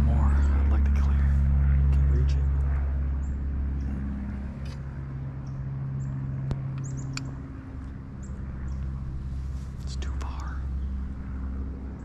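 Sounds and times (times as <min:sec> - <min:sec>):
steady low hum: 0:00.0 - 0:12.0
small birds chirping: 0:05.4 - 0:11.3.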